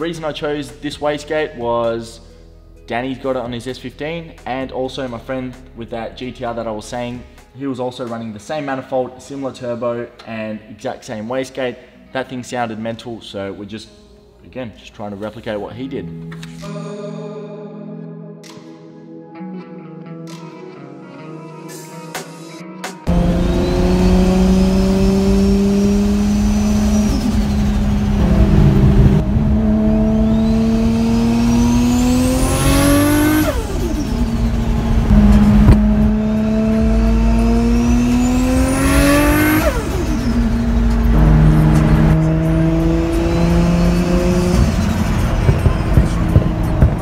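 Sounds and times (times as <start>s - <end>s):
car engine pulling under boost: 23.1s - 47.0s
turbo whistle rising in pitch: 28.2s - 31.2s.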